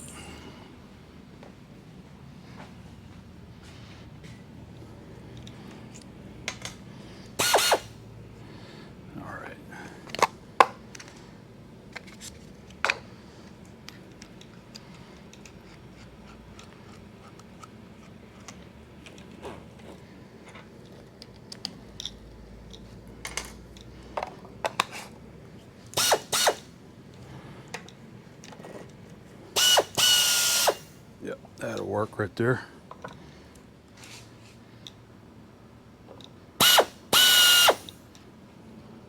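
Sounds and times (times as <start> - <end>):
pneumatic bursts: 7.3 - 8.0, 25.9 - 26.7, 29.6 - 31.0, 36.6 - 38.0
metallic clicks of parts handled: 11.9 - 19.4, 20.4 - 25.1.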